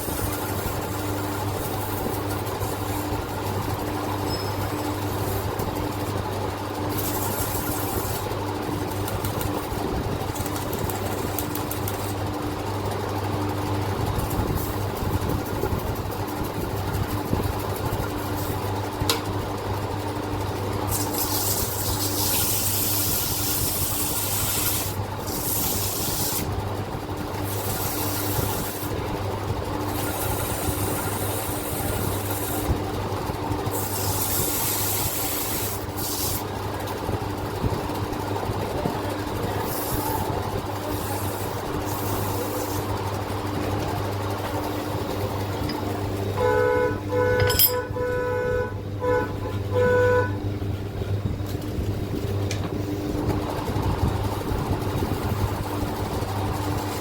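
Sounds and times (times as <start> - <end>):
steady mechanical hum: 0.0 - 57.0
sandpaper rubbing on metal: 6.9 - 8.3, 20.9 - 26.5, 27.4 - 28.9, 29.9 - 32.7, 33.7 - 36.4, 39.6 - 42.9.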